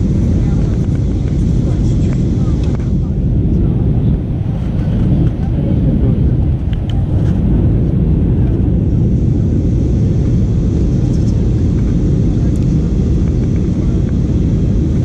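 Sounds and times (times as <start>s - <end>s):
jet engine rumble in cabin: 0.0s - 15.0s
rushing airflow: 0.0s - 15.0s.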